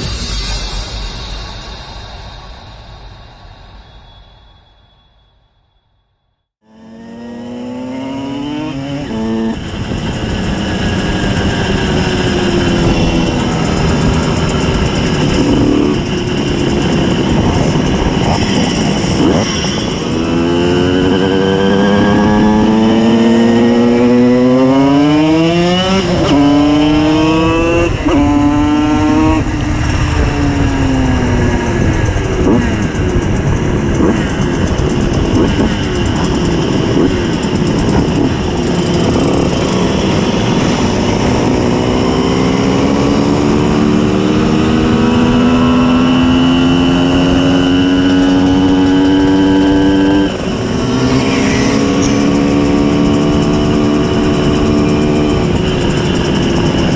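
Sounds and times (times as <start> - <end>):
two-stroke moped engine revving: 6.6 - 56.9.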